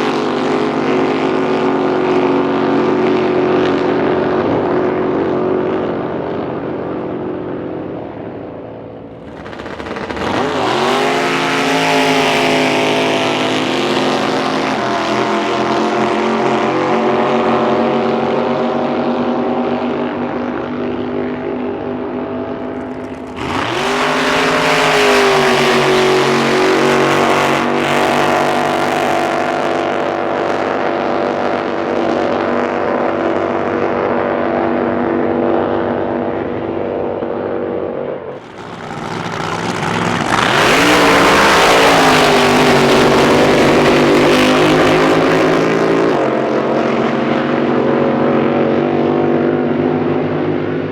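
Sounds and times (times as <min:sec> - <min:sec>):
racing boat engines revving: 0:00.0 - 0:50.9.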